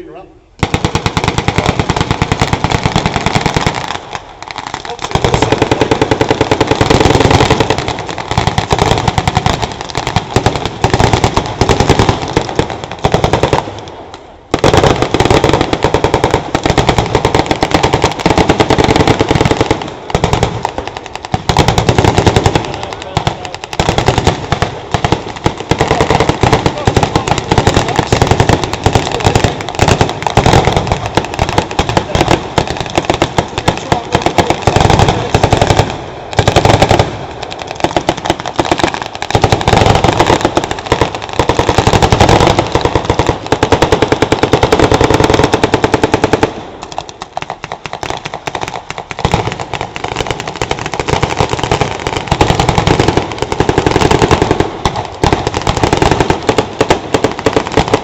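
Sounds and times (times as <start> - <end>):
automatic gunfire bursts: 5.1 - 13.6, 21.4 - 37.2.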